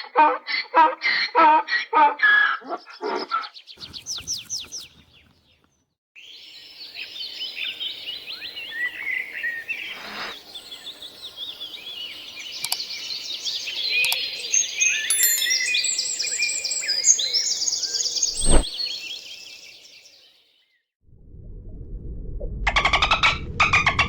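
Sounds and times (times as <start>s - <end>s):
small birds chirping and twittering: 2.4s - 20.8s.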